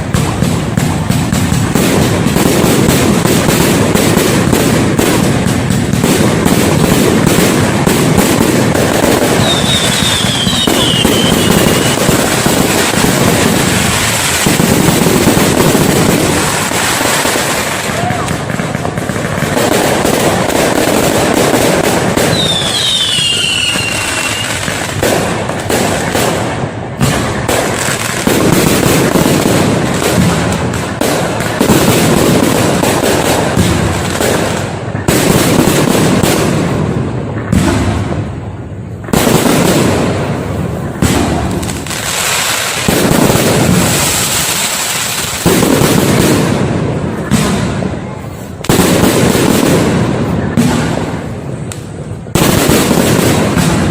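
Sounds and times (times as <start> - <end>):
fireworks bangs and crackling: 0.0 - 53.9
falling whistle: 9.4 - 12.0, 22.3 - 24.6.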